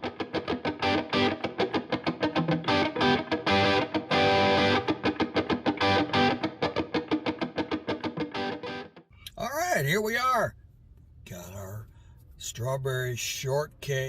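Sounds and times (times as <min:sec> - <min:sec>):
distorted electric guitar music: 0:00.0 - 0:09.0.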